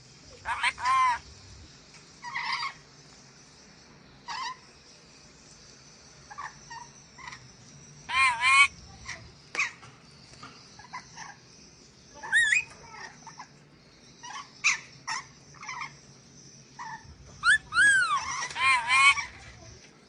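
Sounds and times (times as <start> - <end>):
parrot chirping and squawking: 0.3 - 1.2, 2.2 - 2.8, 4.3 - 4.6, 8.1 - 9.8, 12.2 - 13.5, 14.2 - 16.0, 16.8 - 19.6.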